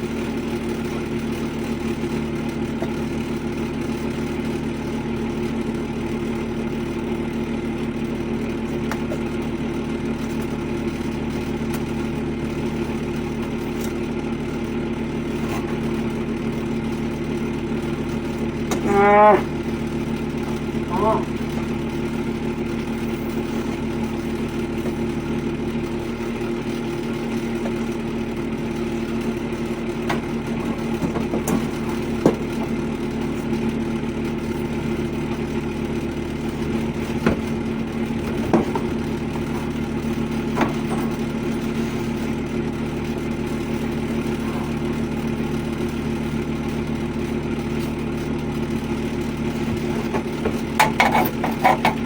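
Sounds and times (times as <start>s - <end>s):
machinery humming: 0.0s - 52.0s
sharp clicks and knocks: 37.1s - 39.5s, 49.8s - 52.0s.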